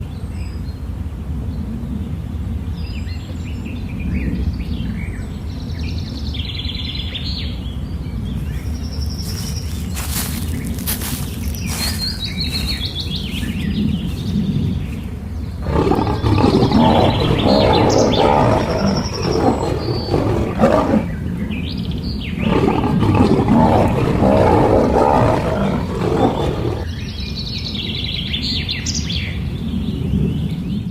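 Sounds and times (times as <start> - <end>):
birds chirping: 8.1 - 29.0
large animal roaring: 15.6 - 21.8, 22.4 - 26.9.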